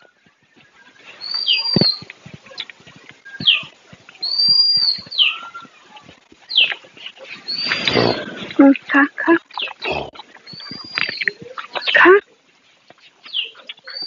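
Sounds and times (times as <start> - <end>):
bird whistled call: 7.4 - 8.4.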